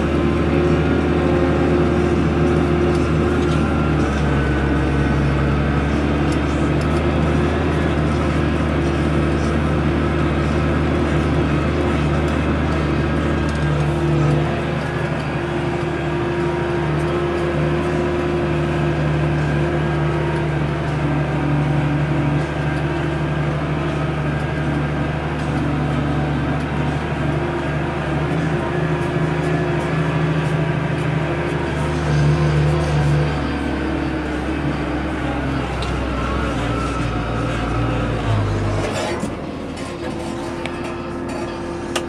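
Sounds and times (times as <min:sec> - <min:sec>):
tractor diesel engine under load: 0:00.0 - 0:42.0.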